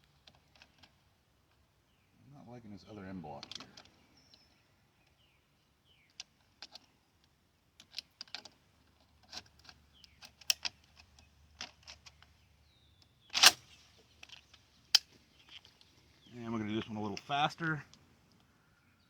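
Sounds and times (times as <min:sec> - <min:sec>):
metallic clicks of cartridges loading: 0:06.1 - 0:12.3, 0:13.0 - 0:15.9.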